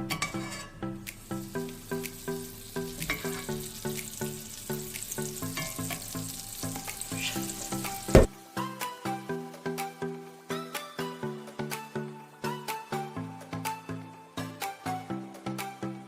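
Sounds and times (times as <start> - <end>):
music with plucked notes: 0.0 - 16.0
egg sizzling in a pan: 1.0 - 8.4.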